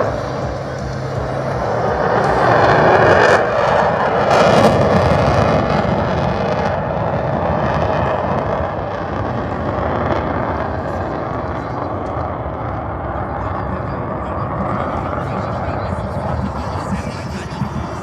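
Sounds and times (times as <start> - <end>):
aircraft flying past: 0.0 - 6.0.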